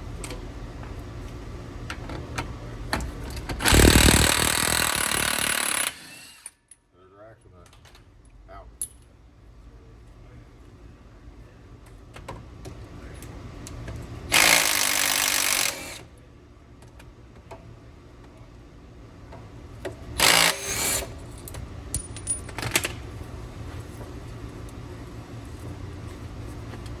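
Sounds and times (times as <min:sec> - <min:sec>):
power tool loosening bolts: 0:03.4 - 0:06.6, 0:14.3 - 0:16.0, 0:20.2 - 0:21.2.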